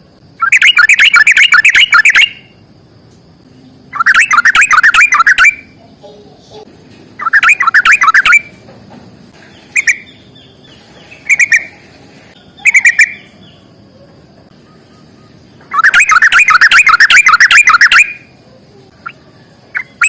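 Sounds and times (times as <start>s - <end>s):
bird singing chattering notes: 0.4s - 2.6s, 3.9s - 5.8s, 7.2s - 8.6s, 9.4s - 11.8s, 12.4s - 13.8s, 14.5s - 18.3s, 19.0s - 20.0s.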